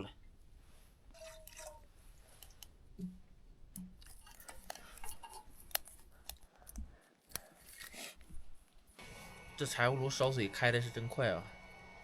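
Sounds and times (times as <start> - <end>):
brief tone: 9.0 - 12.0.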